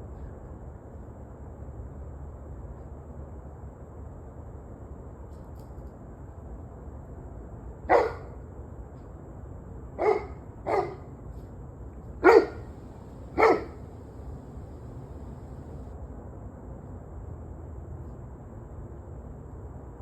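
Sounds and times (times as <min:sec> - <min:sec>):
dog barking: 0:07.9 - 0:08.4, 0:10.0 - 0:11.1, 0:12.2 - 0:15.8
low background rumble: 0:12.3 - 0:15.9.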